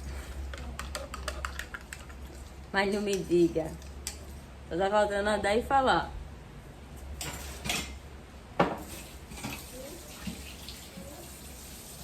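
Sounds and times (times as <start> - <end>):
dishes clinking and knocking: 7.2 - 8.0.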